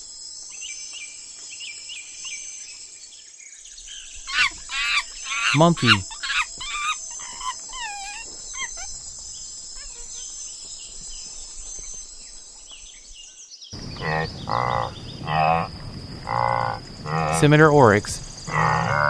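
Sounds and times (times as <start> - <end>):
jungle insects droning: 13.8 - 19.0.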